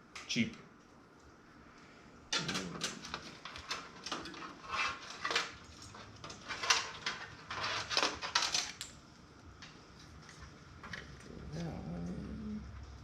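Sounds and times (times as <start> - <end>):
computer parts clattering in metal case: 2.3 - 8.8.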